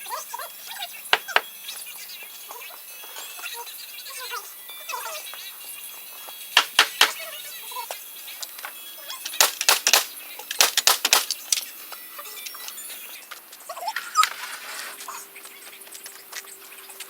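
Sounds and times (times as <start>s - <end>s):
sharp knocks: 6.6s - 7.2s.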